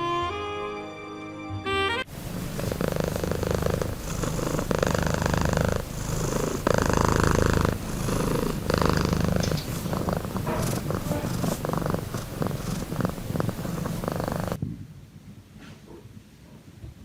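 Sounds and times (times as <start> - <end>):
cat purring: 2.1 - 14.6.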